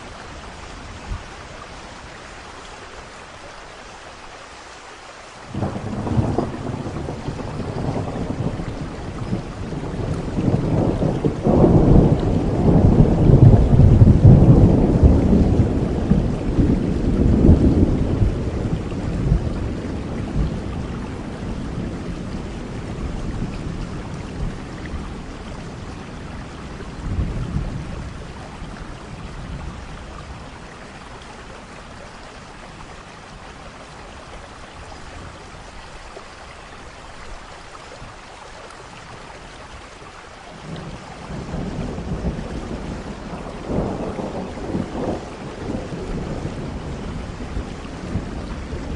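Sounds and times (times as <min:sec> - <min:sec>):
heavy rain: 0:00.0 - 0:48.9
rolling thunder: 0:05.5 - 0:30.6, 0:40.6 - 0:48.9.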